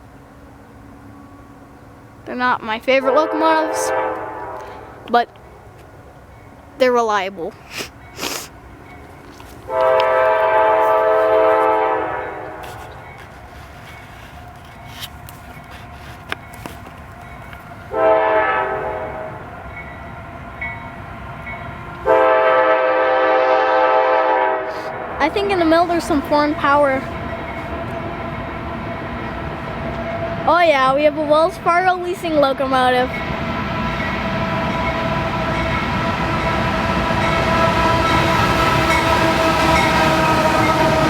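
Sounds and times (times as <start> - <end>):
freight train rumbling: 0.0 - 41.0
locomotive air horn blasts: 3.0 - 5.1, 9.7 - 13.3, 17.9 - 19.4, 22.0 - 25.1, 37.1 - 41.0.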